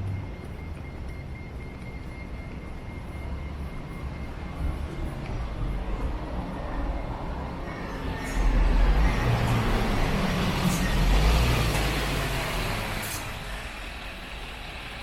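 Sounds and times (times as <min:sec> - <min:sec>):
city street traffic: 0:00.0 - 0:15.0
heavy vehicle engine rumble passing: 0:07.0 - 0:15.0.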